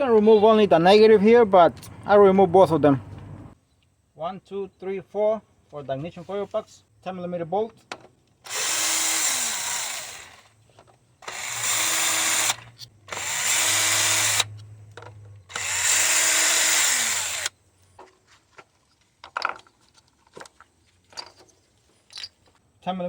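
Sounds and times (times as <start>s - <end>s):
cordless power tool spinning: 8.5s - 10.5s, 11.2s - 14.5s, 15.5s - 17.5s.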